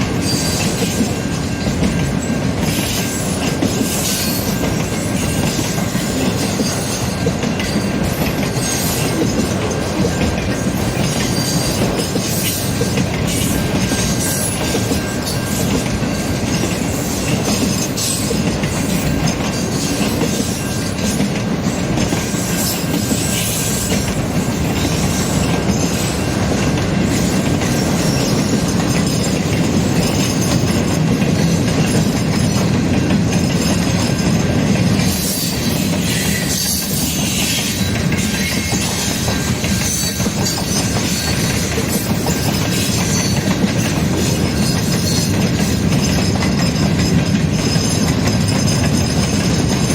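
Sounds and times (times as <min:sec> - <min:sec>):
train wheels clattering over rail joints: 0:00.0 - 0:49.9.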